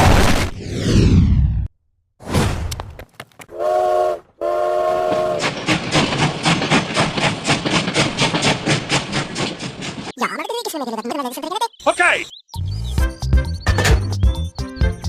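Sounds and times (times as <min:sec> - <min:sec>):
train horn blasts: 0:03.5 - 0:05.4
train wheels clickety-clack: 0:04.9 - 0:10.2.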